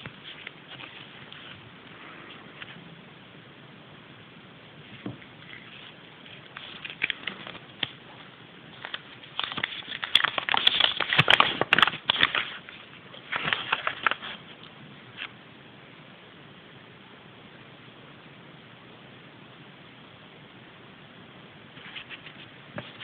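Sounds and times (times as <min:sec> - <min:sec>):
wrapping crinkling and crackling: 0:00.0 - 0:02.8, 0:04.9 - 0:15.3.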